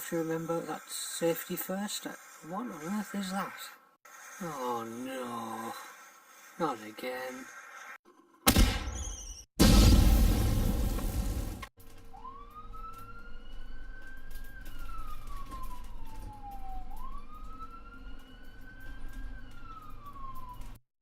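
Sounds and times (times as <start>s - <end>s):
loud noise: 8.5s - 11.7s
emergency vehicle siren wailing: 12.0s - 20.8s.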